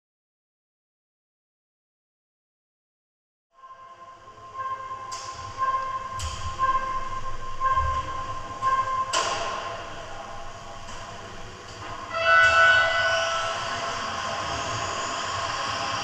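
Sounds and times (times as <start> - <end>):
held multi-pitch electronic tone: 3.6 - 11.4, 12.0 - 16.0
electronic beeps: 4.4 - 9.2.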